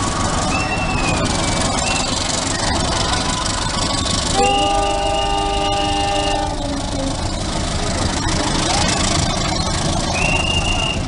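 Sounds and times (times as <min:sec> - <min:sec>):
train running past: 0:00.0 - 0:11.0
train horn chord: 0:04.4 - 0:07.3
high squeal: 0:08.8 - 0:11.0.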